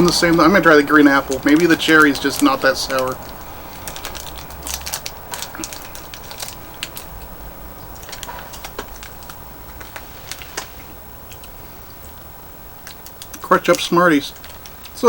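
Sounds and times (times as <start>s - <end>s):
clicks and crackles: 0.0s - 15.0s
plastic candy packet crinkling: 0.0s - 15.0s.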